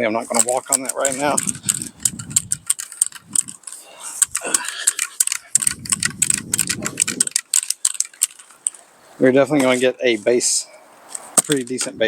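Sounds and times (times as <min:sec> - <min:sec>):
rapid clicking and rattling: 0:00.3 - 0:08.8
wind rumbling on microphone: 0:01.2 - 0:03.6, 0:05.4 - 0:07.4.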